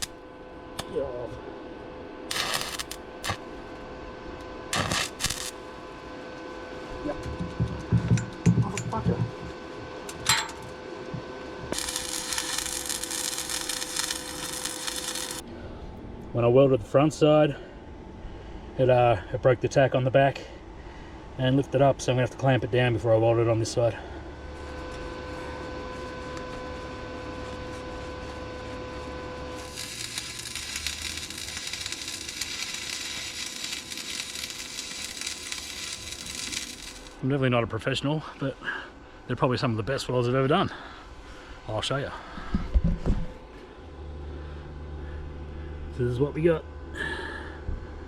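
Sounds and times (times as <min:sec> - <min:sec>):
welding arc crackling hiss: 0:00.0 - 0:00.2, 0:02.3 - 0:03.6, 0:04.7 - 0:05.7, 0:11.6 - 0:15.4, 0:28.9 - 0:37.2
steady electrical hum: 0:00.0 - 0:48.0.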